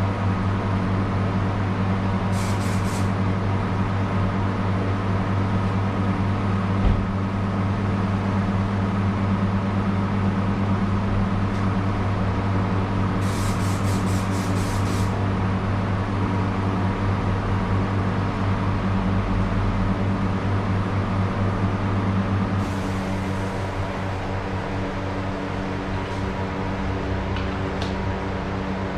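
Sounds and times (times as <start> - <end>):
short hissing pulses: 2.3 - 3.2, 13.2 - 15.2, 22.6 - 24.2
machine humming: 2.3 - 3.4.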